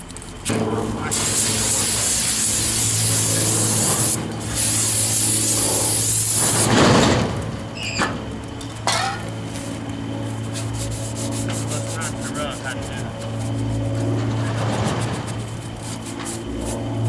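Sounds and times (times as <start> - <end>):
aerosol spray can hissing: 1.1 - 6.7
rubbing noise: 9.5 - 17.0.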